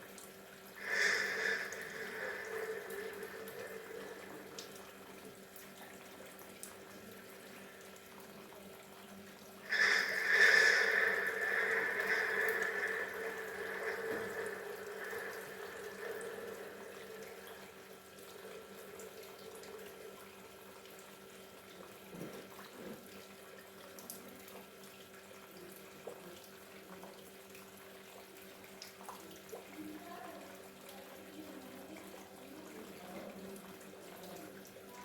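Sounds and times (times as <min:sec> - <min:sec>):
small waterfall trickling: 0:00.0 - 0:35.0
water drips: 0:00.0 - 0:35.0
steady low hum: 0:00.8 - 0:06.0, 0:09.7 - 0:20.3.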